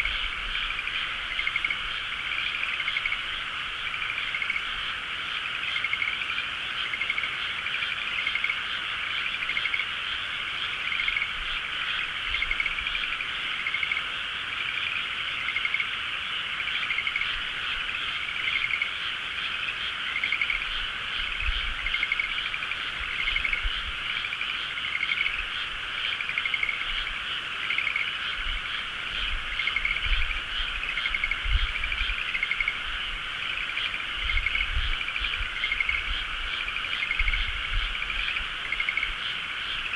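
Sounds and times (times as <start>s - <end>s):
frogs croaking: 0.0s - 39.9s
pulsed frog trills: 0.0s - 39.9s.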